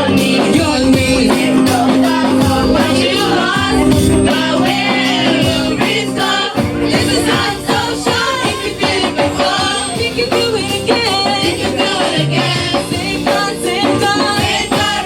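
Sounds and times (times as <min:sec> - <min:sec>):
light percussion: 0:00.0 - 0:06.0
group of voices singing: 0:00.0 - 0:15.0
keyboard: 0:00.0 - 0:15.0
bass line: 0:00.6 - 0:05.8.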